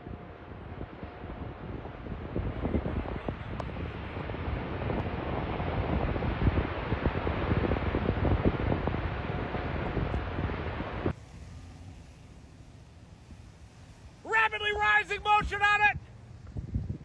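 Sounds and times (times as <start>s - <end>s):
wind buffeting microphone: 0.0s - 11.3s, 15.1s - 17.0s
tornado low roar: 0.0s - 17.0s
steady hiss: 0.7s - 16.5s.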